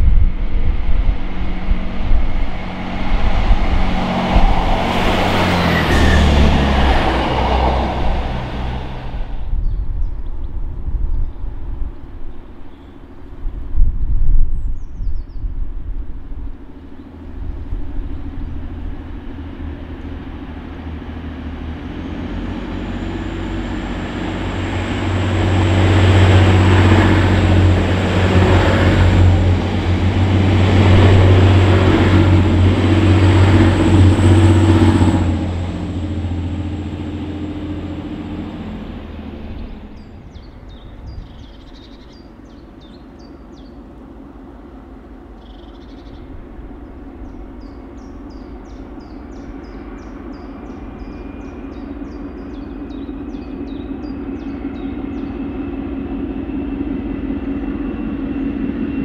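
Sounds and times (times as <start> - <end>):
high-pitched whine: 0.0 - 10.2
train passing: 0.0 - 14.3, 15.6 - 59.0
birds chirping: 39.4 - 43.8, 45.4 - 55.6.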